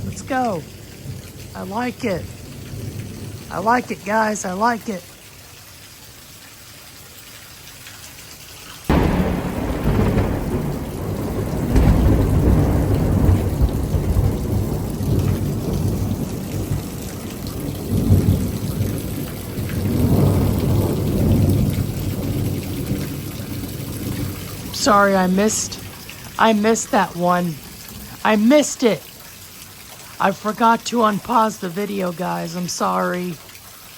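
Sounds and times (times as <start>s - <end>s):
thunder clap and rumble: 0.0s - 4.2s, 8.9s - 28.2s
steady rain: 0.0s - 33.9s.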